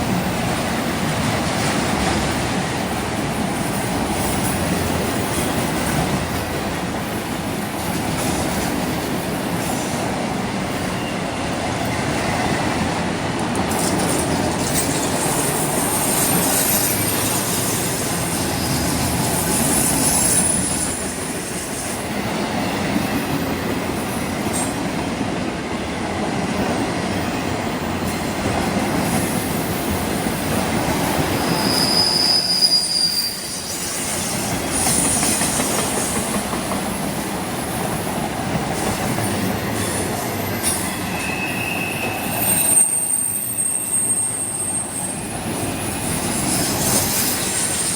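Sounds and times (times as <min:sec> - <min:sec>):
train wheels on rails: 0:00.0 - 0:47.9
high-pitched wheel squeals: 0:15.2 - 0:21.2, 0:31.4 - 0:35.4, 0:39.3 - 0:47.9.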